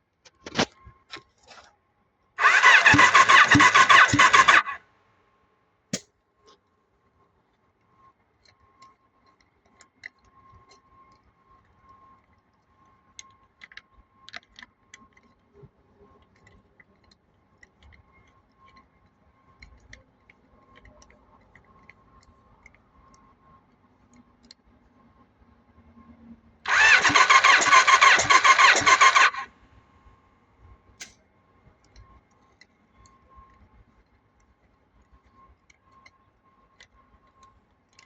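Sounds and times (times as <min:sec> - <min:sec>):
motorcycle engine starting: 0:02.4 - 0:04.8, 0:26.7 - 0:29.5.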